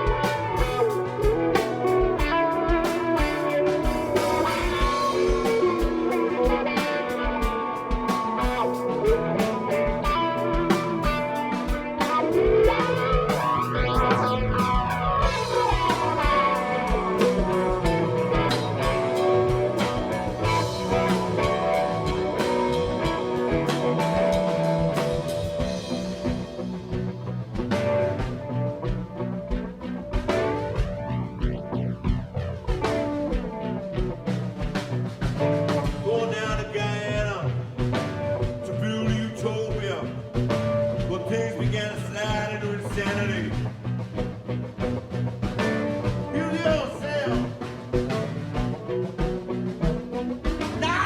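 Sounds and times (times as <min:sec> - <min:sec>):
bass: 0:00.0 - 0:51.0
drum beat: 0:00.0 - 0:51.0
electric guitar sustained notes: 0:00.0 - 0:51.0
person singing: 0:36.0 - 0:37.6.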